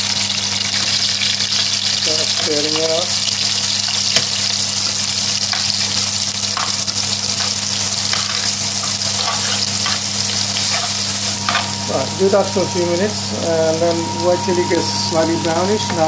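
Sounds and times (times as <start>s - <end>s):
spices sizzling in oil: 0.0s - 16.0s
spoon scraping pan: 6.6s - 11.8s.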